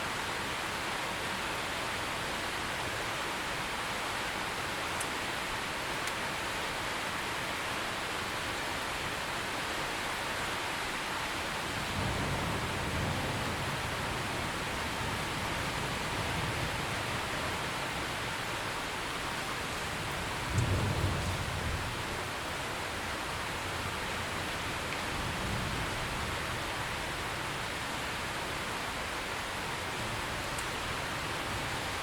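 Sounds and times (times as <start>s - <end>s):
steady rain: 0.0s - 32.0s
thunder rumbling: 11.8s - 17.5s, 20.0s - 22.0s.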